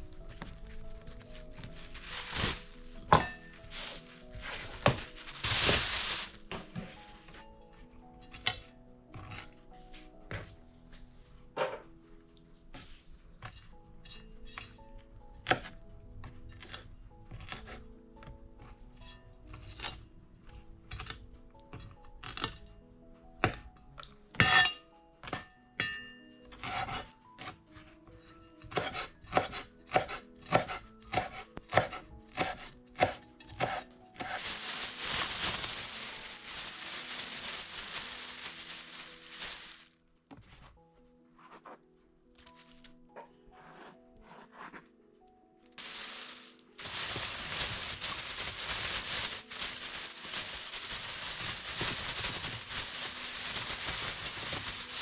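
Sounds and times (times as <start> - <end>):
soft background music: 0.0 - 55.0
dishes and utensils clinking: 1.6 - 7.3, 11.6 - 11.9, 24.3 - 27.0
steady rushing hiss: 34.4 - 40.0, 45.8 - 55.0.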